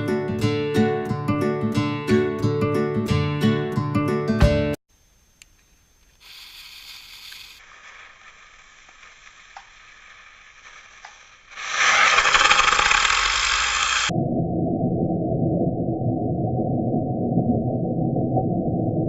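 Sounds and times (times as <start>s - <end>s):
acoustic guitar music: 0.0s - 4.8s
faint hiss with small clicks: 5.0s - 11.4s
firework fuse hissing: 6.0s - 14.1s.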